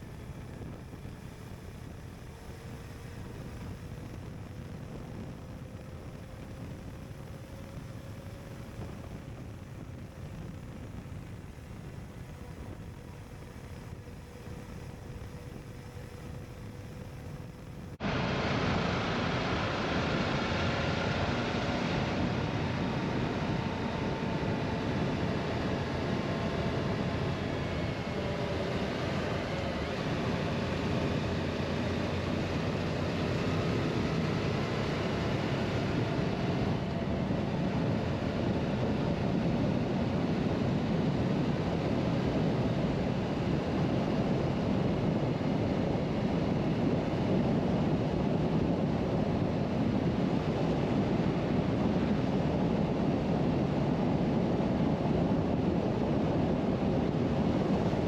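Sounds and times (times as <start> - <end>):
motorcycle engine hum: 0.0 - 41.8
wind rushing over microphone: 0.0 - 58.0.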